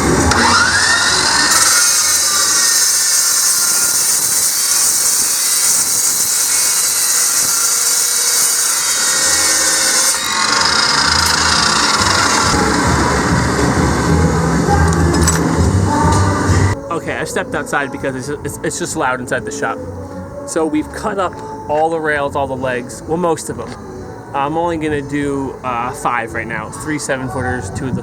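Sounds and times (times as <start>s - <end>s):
power saw cutting steel: 0.0s - 16.8s.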